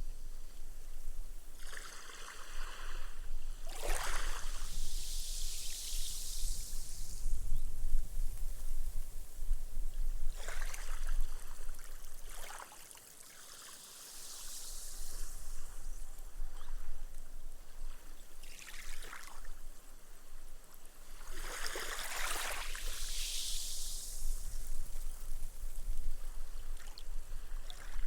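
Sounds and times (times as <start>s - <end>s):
gentle waves washing on beach: 1.6s - 7.4s, 10.3s - 17.3s, 20.8s - 28.0s
foam fizzing and hissing: 3.8s - 8.7s, 13.5s - 16.4s, 21.3s - 26.2s.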